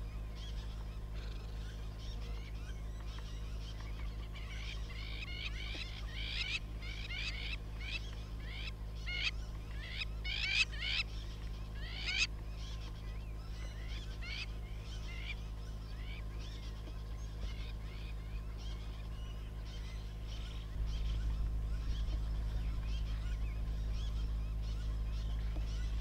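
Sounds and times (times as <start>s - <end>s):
birds calling sharp sliding notes: 0.0s - 26.0s
steady low hum: 0.0s - 26.0s.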